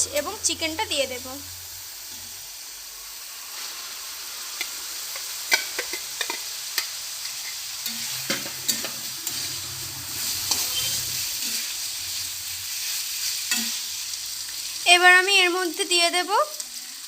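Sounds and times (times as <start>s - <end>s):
food sizzling in hot oil: 0.0s - 17.0s
utensil scraping a pan: 5.1s - 13.8s.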